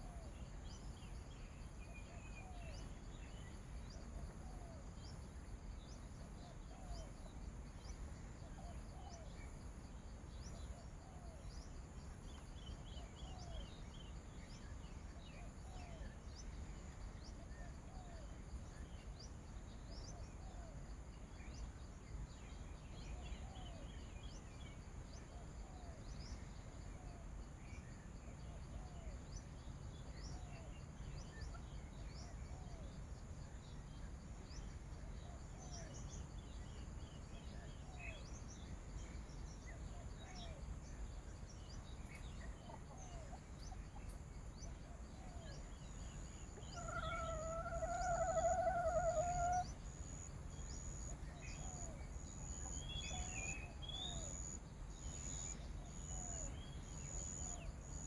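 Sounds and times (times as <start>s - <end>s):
small birds chirping: 37.7s - 49.8s.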